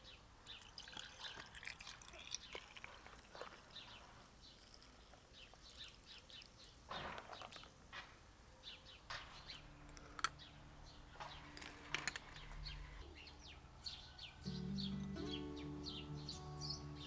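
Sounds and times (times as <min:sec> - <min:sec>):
small birds chirping: 0:00.0 - 0:17.0
background music low tones: 0:09.1 - 0:17.0.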